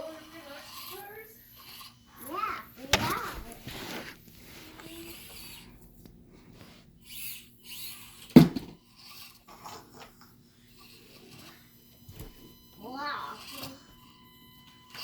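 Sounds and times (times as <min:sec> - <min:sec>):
faint knocks and rustles: 0:02.8 - 0:06.9.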